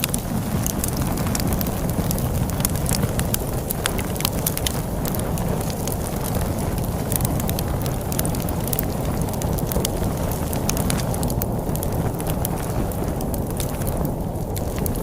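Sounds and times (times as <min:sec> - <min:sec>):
storm wind rumble: 0:00.0 - 0:15.0
wood fire crackling: 0:00.0 - 0:15.0.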